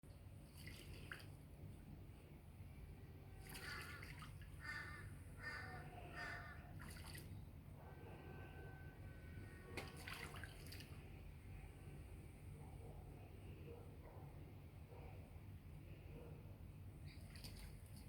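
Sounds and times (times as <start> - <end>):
water splashing and dripping: 0.4 - 1.5, 3.4 - 7.4, 9.7 - 11.1, 17.1 - 18.0
bird calls: 4.6 - 6.7.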